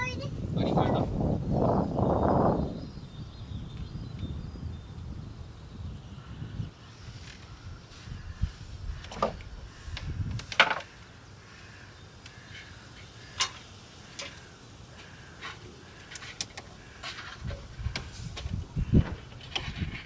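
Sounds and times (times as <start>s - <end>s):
light wooden knocks and clicks: 9.0s - 10.9s.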